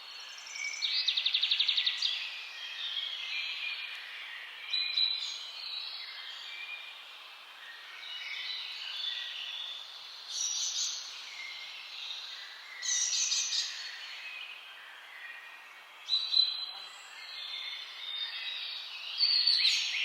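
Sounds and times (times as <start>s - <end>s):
birds singing and chirping: 7.6s - 20.0s.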